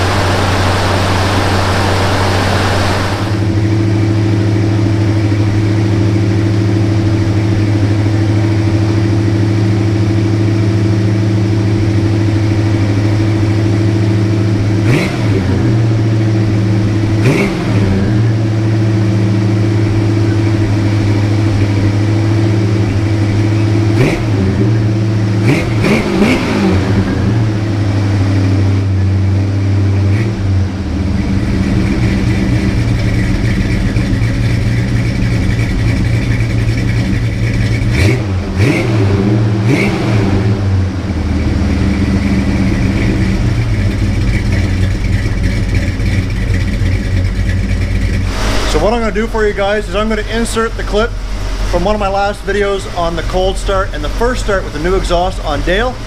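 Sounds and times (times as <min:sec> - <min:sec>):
car engine idling: 0:00.0 - 0:56.0
engine revving: 0:00.0 - 0:56.0.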